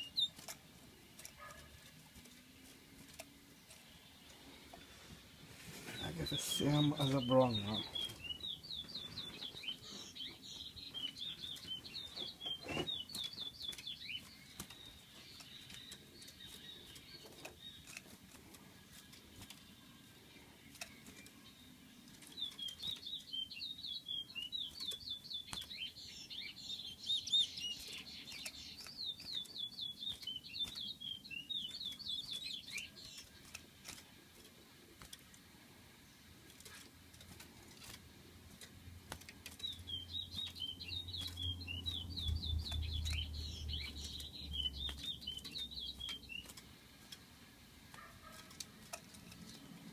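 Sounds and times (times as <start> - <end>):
songbird fast chirping: 0.0 - 37.4, 38.2 - 49.9.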